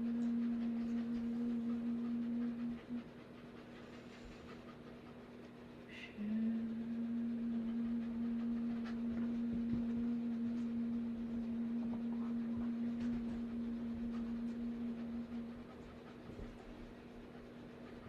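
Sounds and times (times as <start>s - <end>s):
person humming low note: 0.0s - 3.2s, 5.9s - 16.0s.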